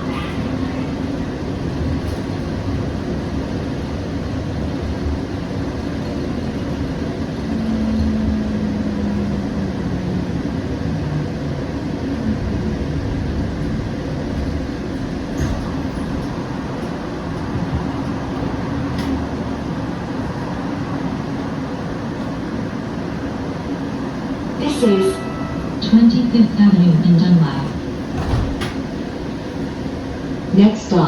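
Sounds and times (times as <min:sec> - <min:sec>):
train interior low rumble: 0:00.0 - 0:31.0.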